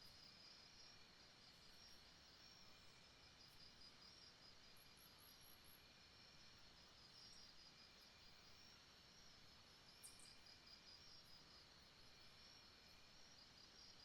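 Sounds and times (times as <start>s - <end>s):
soft hiss: 0.0s - 14.0s
insects trilling: 9.9s - 14.0s.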